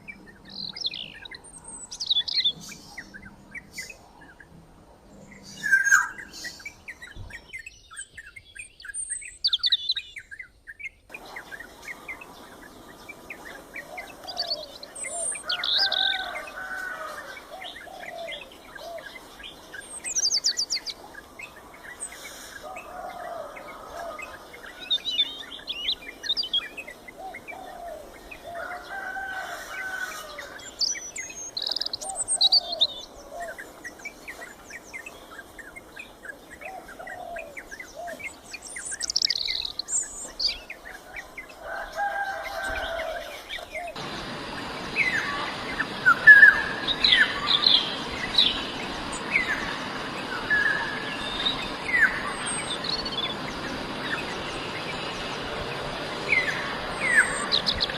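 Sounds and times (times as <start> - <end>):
birds chirping and trilling: 0.0 - 57.9
oriole calls: 35.0 - 57.9.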